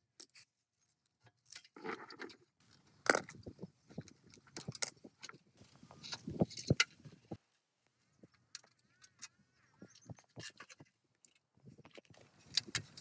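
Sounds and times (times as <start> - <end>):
metal parts and tools clinking: 3.0 - 5.0.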